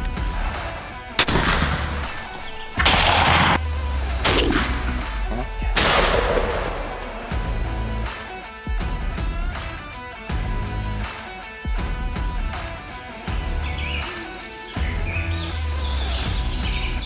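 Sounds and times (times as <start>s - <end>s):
shotgun blasts echoing: 0.1s - 7.7s
music bass line: 2.8s - 8.1s, 10.3s - 11.1s.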